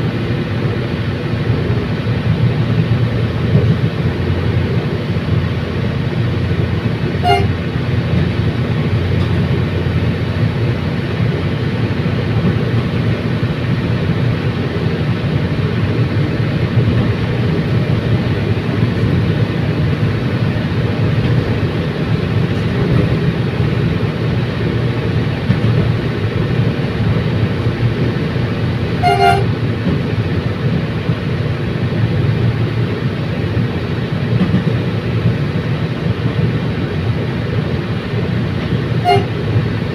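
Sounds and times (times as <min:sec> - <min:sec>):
train rumbling: 0:00.0 - 0:39.9
train horn toots: 0:07.2 - 0:07.7, 0:29.0 - 0:29.6, 0:39.0 - 0:39.4.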